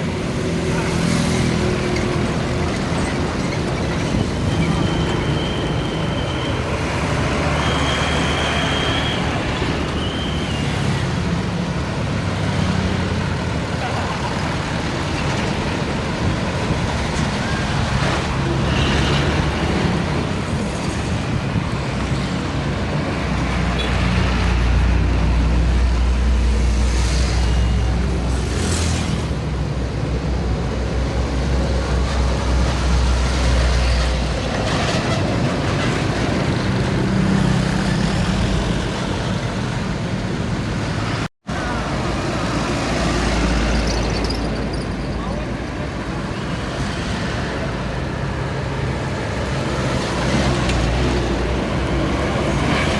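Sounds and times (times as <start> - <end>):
diesel trucks passing: 0.0 - 52.9.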